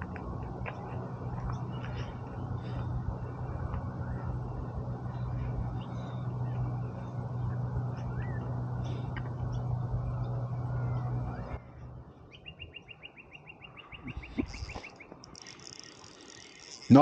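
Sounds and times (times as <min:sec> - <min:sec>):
low motor hum: 0:00.0 - 0:17.0
faint bird chirps: 0:12.3 - 0:16.9
bird trilling rapid ticks: 0:12.4 - 0:17.0.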